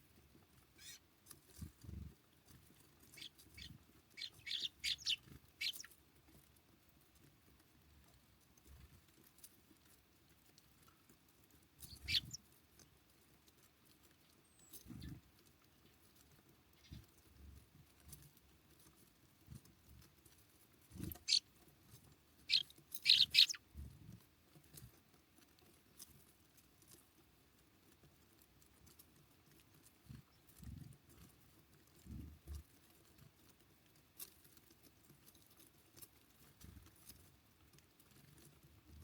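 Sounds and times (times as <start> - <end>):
short high bird calls: 3.2 - 5.9, 11.9 - 12.4, 21.1 - 21.4, 22.5 - 23.6.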